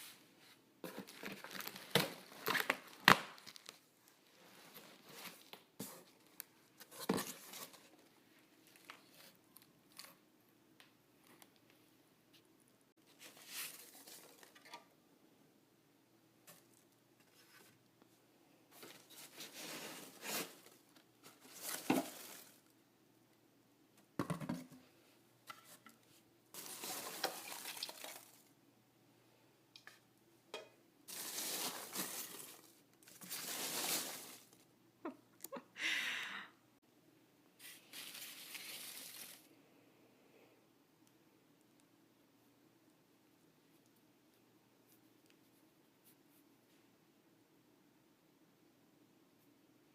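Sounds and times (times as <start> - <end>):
packaging rustling and crinkling: 0.9 - 3.9, 18.8 - 22.7, 26.6 - 28.5, 31.1 - 34.6.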